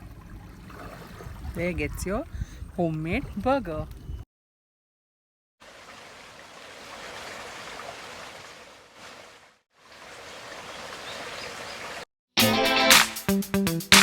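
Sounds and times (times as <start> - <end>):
music: 12.4 - 14.0.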